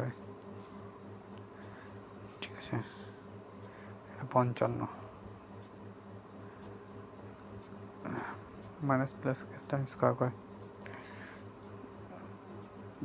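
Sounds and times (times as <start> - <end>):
low buzzing hum: 0.0 - 13.0
soft breath: 1.5 - 2.0, 2.8 - 4.2, 8.0 - 8.5, 10.8 - 11.5
person speaking: 2.3 - 3.2, 4.0 - 5.3, 8.0 - 10.4.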